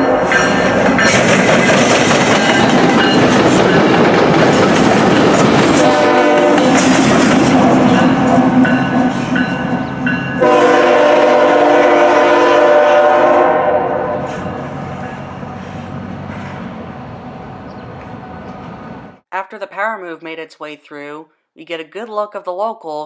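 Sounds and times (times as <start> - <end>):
diesel locomotives running past: 0.0 - 19.2
locomotive horn blasts: 5.7 - 6.8, 10.4 - 14.5.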